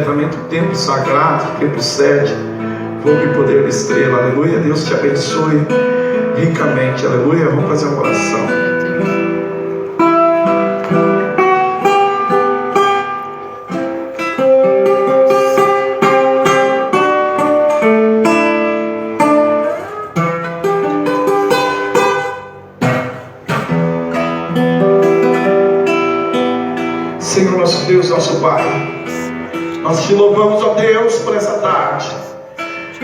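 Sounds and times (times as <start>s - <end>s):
acoustic guitar chords: 0.0s - 33.0s.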